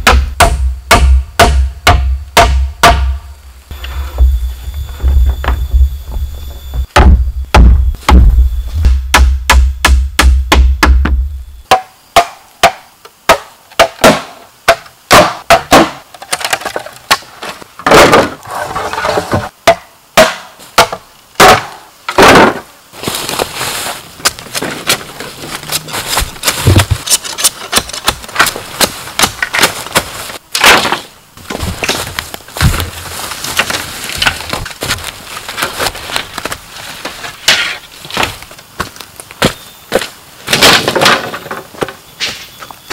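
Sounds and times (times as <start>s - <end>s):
blade chopping bamboo: 0.0s - 3.2s, 11.7s - 16.0s
bamboo cracking: 21.4s - 39.2s.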